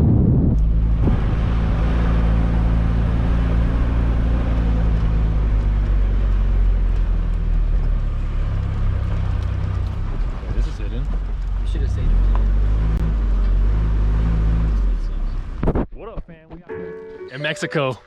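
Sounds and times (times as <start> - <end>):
engine humming steadily: 0.0 - 15.6.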